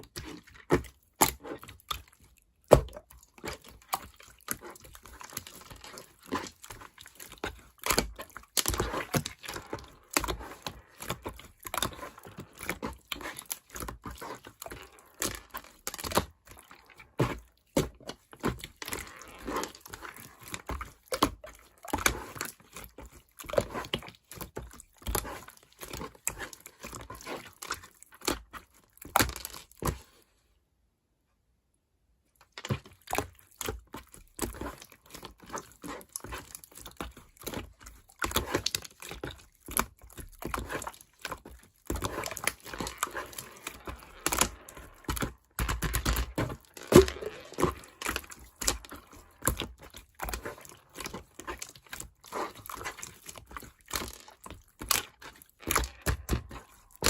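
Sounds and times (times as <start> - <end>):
slime being squished by hand: 32.6 - 57.0.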